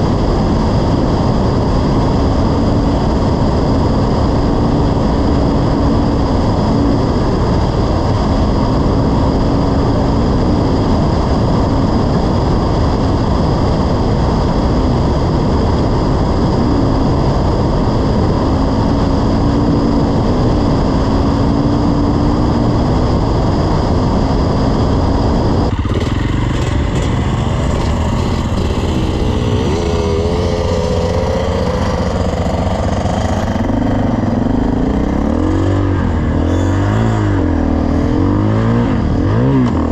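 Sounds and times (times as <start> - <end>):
wind noise on microphone: 0.0 - 39.9
dirt bike engine revving: 24.0 - 39.9.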